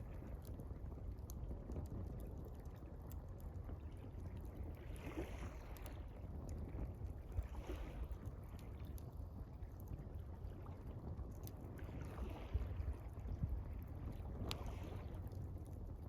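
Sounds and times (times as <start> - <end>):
campfire crackling and popping: 0.0 - 11.7
low steady rumble: 0.0 - 16.0
soft rushing swell of water: 4.2 - 9.1, 10.4 - 15.7
water lapping: 4.5 - 6.7, 7.3 - 9.0, 10.4 - 15.5.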